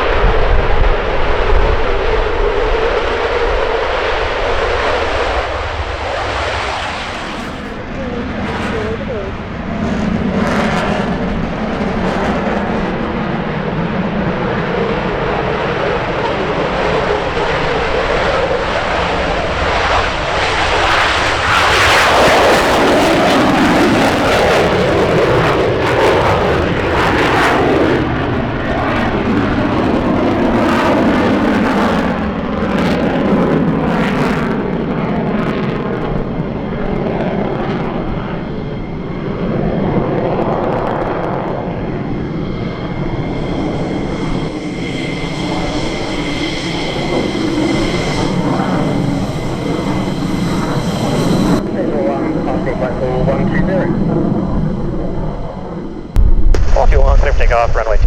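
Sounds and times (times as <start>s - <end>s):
military jet engine: 0.0s - 58.0s.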